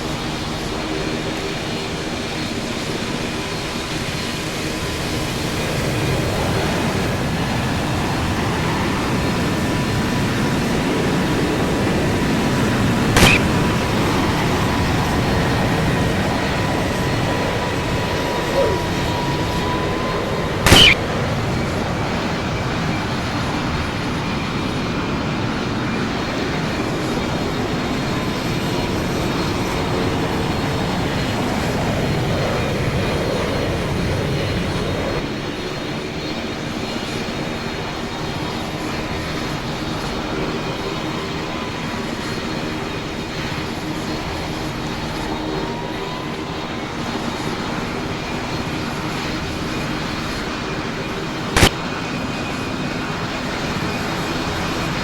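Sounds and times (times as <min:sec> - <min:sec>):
aircraft engines running: 0:00.0 - 0:55.0
sharp click: 0:13.2 - 0:13.5, 0:20.7 - 0:21.0, 0:51.6 - 0:51.8.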